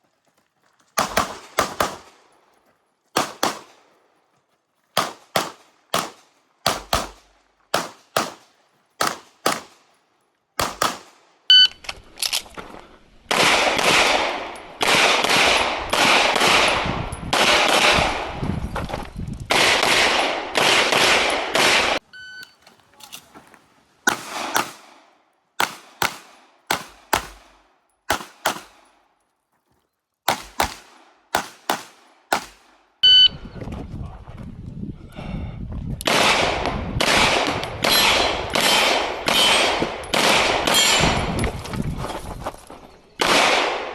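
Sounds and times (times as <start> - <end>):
pistol shots: 1.0 - 2.2, 3.2 - 3.8, 5.0 - 9.8, 10.6 - 11.2, 13.3 - 18.4, 19.5 - 22.0, 24.1 - 25.0, 25.6 - 28.9, 30.3 - 32.7, 36.1 - 41.3, 43.2 - 43.9.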